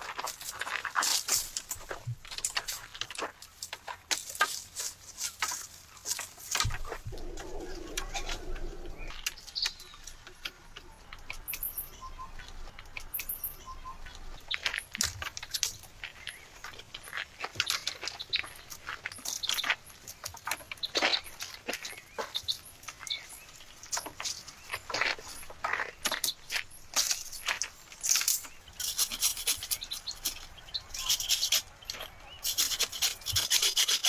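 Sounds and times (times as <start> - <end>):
bird cooing: 6.7 - 9.2
bird chirps: 6.8 - 14.6.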